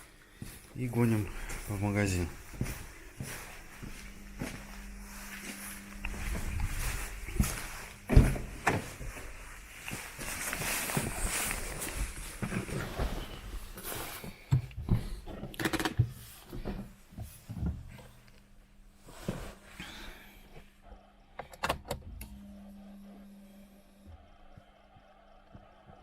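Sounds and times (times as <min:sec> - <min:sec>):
steady low hum: 0:00.0 - 0:15.3, 0:22.0 - 0:26.0
knocks and rustling in car: 0:08.0 - 0:09.0.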